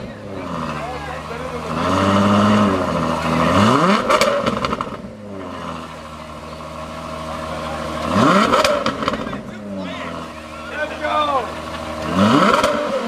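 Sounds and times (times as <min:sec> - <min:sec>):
car engine revving and idling: 0:00.0 - 0:13.0.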